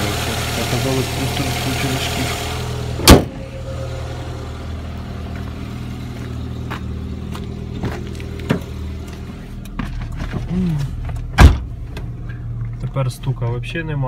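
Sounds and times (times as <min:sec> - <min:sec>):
car engine idling: 0:00.0 - 0:14.0
sharp bang: 0:03.0 - 0:03.5.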